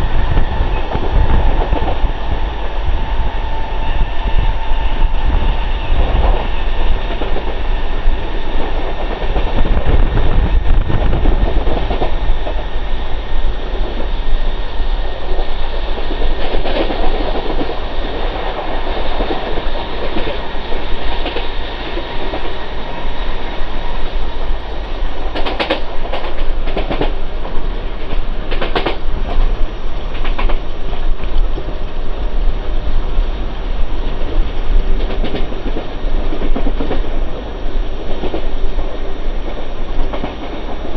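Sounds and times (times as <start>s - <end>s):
train wheels rumbling on rails: 0.0s - 40.9s
sharp clacks: 28.1s - 30.6s.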